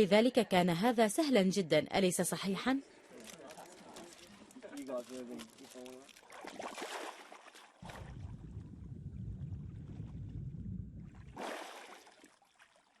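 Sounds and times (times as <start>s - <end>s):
water splashing around boat: 5.1s - 8.7s, 11.0s - 13.0s
steady low rumble: 7.8s - 11.4s.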